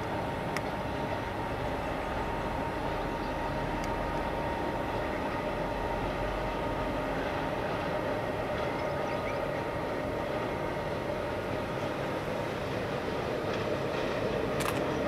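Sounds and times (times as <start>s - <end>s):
constant whine: 0.0s - 15.0s
distant train running: 0.0s - 15.0s.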